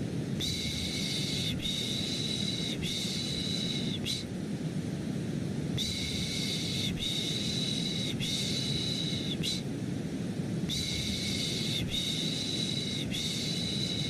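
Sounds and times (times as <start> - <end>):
low white noise hum: 0.0 - 14.0.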